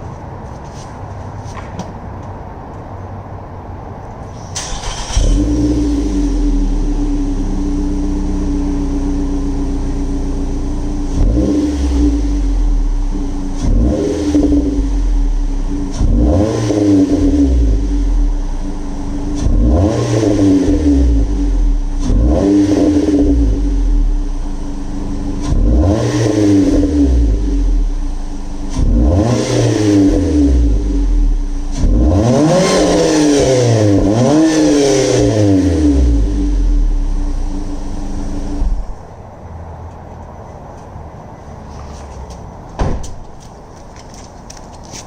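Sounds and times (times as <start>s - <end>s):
car engine revving: 4.4s - 39.1s.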